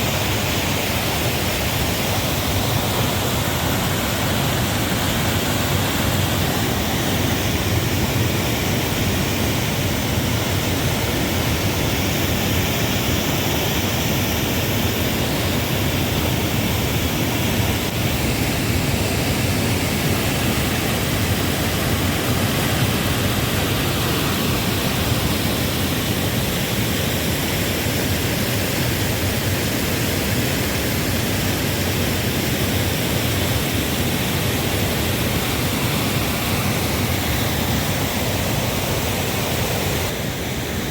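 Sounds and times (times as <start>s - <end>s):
river rushing over stones: 0.0s - 40.9s.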